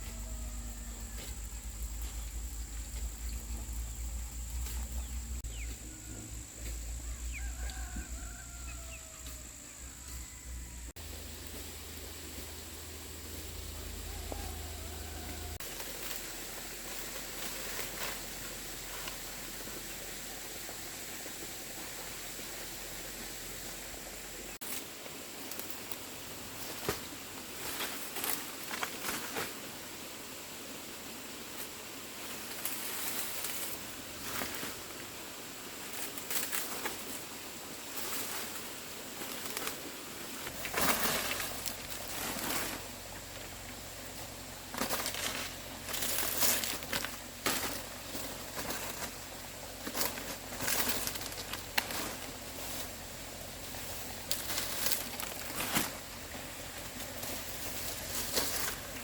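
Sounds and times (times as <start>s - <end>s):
steady background hiss: 0.0s - 59.0s
dry material rustling and crackling: 38.0s - 59.0s.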